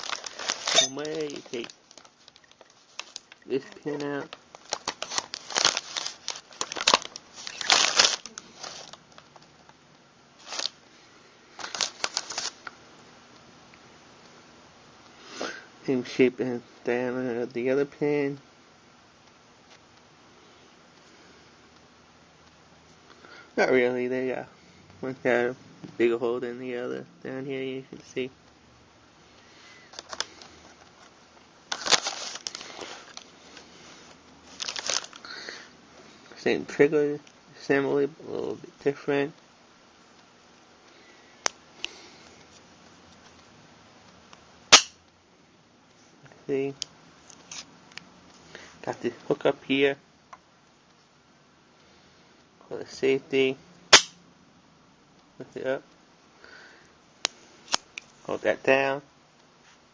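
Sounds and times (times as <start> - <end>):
metal gun parts clicking and rattling: 0.2 - 1.8.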